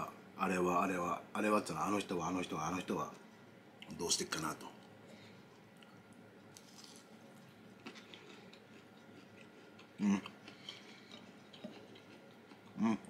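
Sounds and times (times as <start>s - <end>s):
man chewing food: 4.8s - 13.0s.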